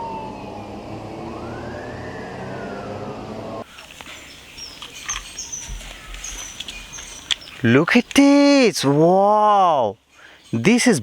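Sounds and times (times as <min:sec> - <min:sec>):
siren wailing: 0:00.0 - 0:03.7
birds chirping: 0:00.0 - 0:11.0.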